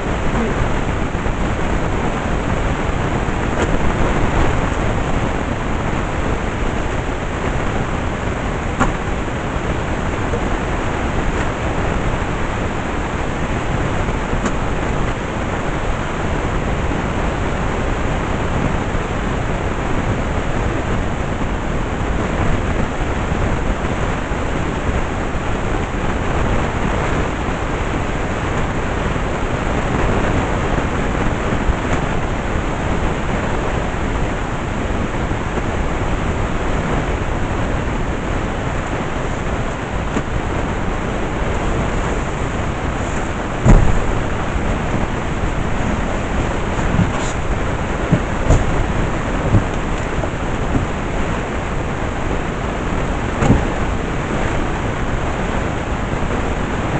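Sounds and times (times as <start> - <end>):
vacuum cleaner running: 38.6 - 55.4.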